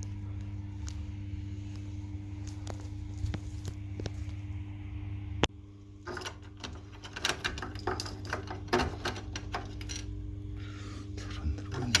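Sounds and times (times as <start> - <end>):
steady low hum: 0.0 - 12.0
clicks and knocks of parts handled: 6.1 - 10.1.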